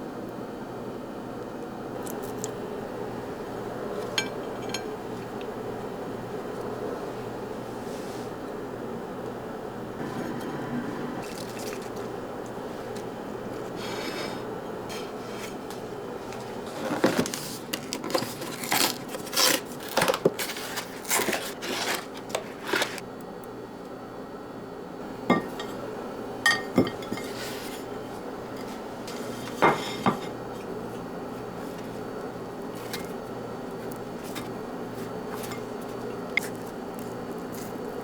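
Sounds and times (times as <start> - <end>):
low hum: 9.8 - 13.8
dishes and cutlery clinking: 25.3 - 25.8, 26.5 - 27.4, 29.5 - 30.4.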